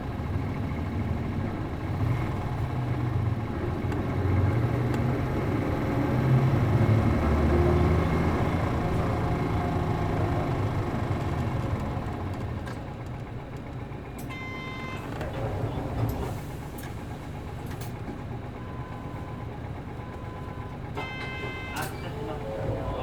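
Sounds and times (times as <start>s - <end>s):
bus diesel engine running: 0.0s - 23.0s
short electronic beep: 20.0s - 22.0s.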